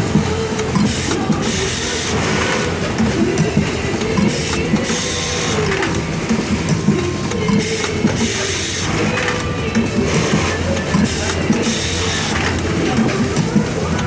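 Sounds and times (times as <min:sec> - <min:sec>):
machine mechanical clatter: 0:00.0 - 0:14.0.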